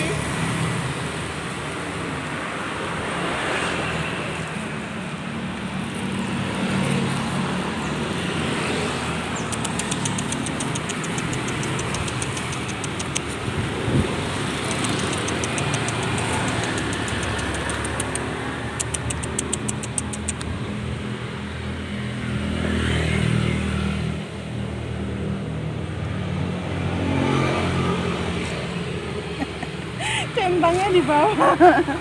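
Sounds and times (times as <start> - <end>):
vehicle engine running: 5.5 - 20.5
rapid ticking: 9.4 - 13.4, 14.6 - 20.5.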